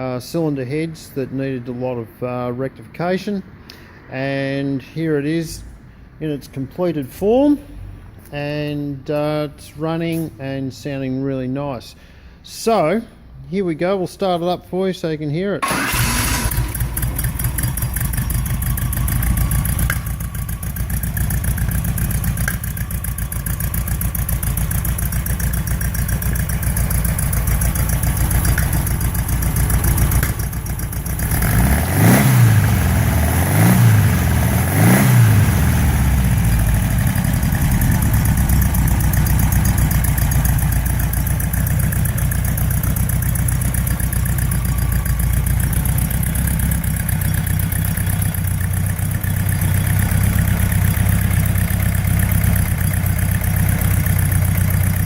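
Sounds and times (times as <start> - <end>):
car engine idling and revving: 15.6 - 55.0.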